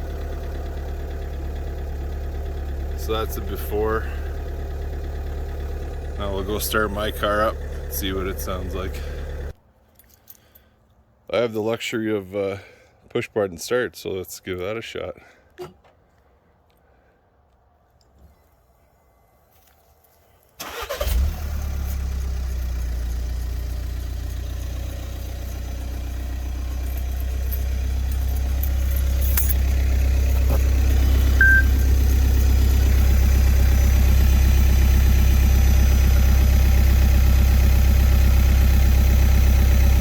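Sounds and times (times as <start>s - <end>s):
diesel engine cranking and idling: 0.0s - 9.6s, 20.6s - 40.0s
short high beep: 31.4s - 31.9s.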